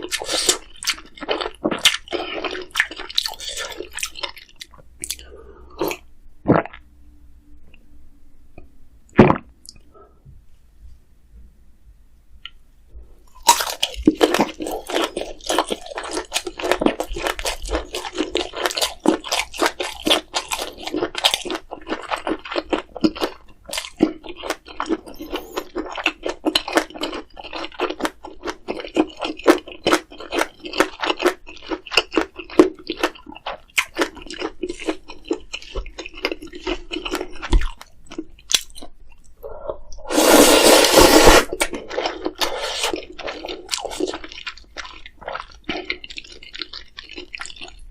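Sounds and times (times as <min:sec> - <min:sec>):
wet chewing and smacking: 0:00.0 - 0:06.0, 0:13.3 - 0:40.0, 0:41.5 - 0:47.9
slurping noodles: 0:40.0 - 0:44.2.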